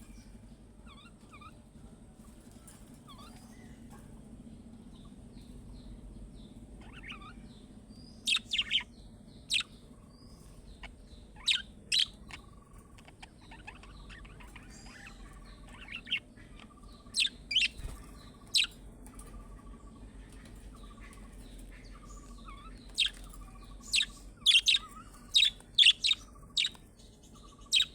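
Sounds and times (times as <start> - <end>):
budgerigars chirping: 6.8 - 7.5, 8.1 - 27.9.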